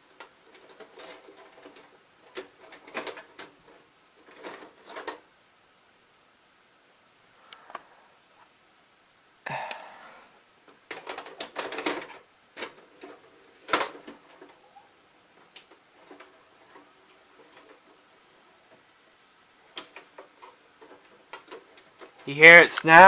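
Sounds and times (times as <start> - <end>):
tape mechanism clicking and clunking: 0.0 - 5.2, 10.7 - 18.9, 19.6 - 22.4.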